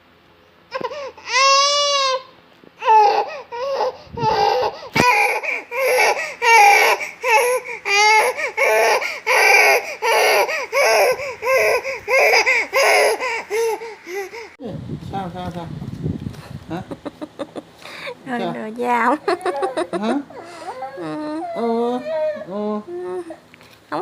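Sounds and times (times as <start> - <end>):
baby crying: 0.7 - 14.6, 19.4 - 23.4.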